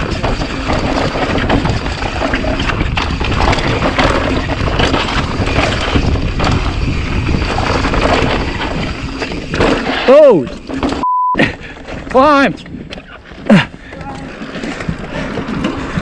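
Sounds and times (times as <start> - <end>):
wind buffeting microphone: 0.0 - 9.6
bike knocking and rattling: 0.0 - 11.0, 11.6 - 16.0
bike tyres grinding over dirt: 0.0 - 11.0, 11.6 - 16.0.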